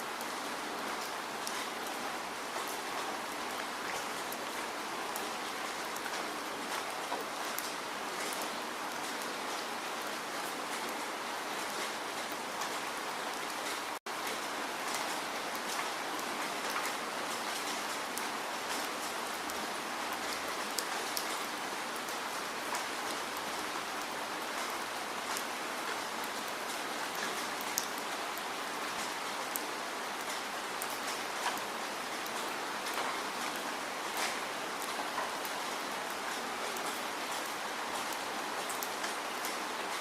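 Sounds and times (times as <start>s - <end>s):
steady rain falling: 0.0s - 40.0s
sharp raindrop ticks: 24.5s - 40.0s.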